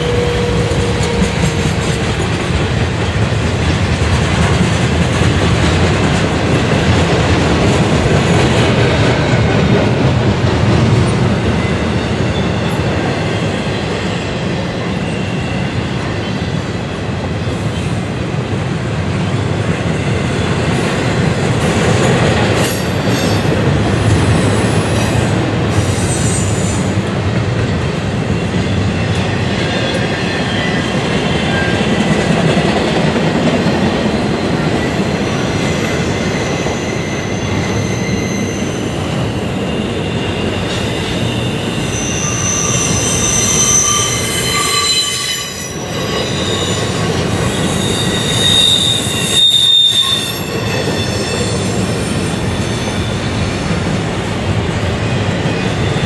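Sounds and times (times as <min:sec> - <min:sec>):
freight train wheels rolling on rails: 0:00.0 - 0:56.0
high-pitched wheel squeal: 0:36.1 - 0:53.2.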